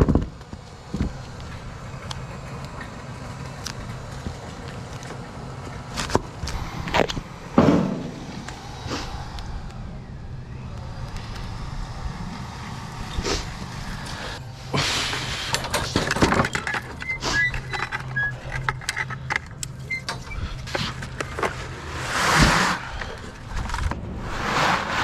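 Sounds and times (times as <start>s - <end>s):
low engine-like hum: 0.0s - 25.0s
scraping or rustling: 20.2s - 25.0s.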